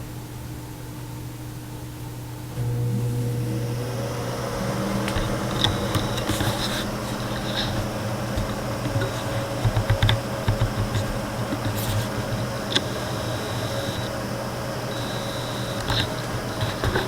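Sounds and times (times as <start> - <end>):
electric fan motor hum: 0.0 - 17.0
irregular clicks and tapping: 4.9 - 14.2, 14.9 - 17.0.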